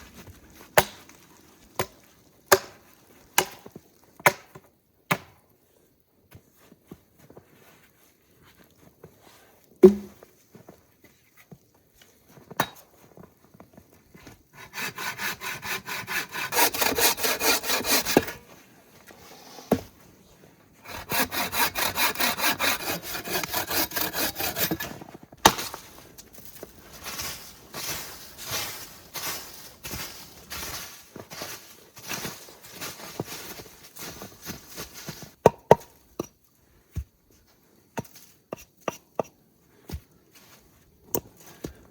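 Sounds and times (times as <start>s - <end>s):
hand saw cutting wood: 14.5s - 18.5s, 20.8s - 25.8s.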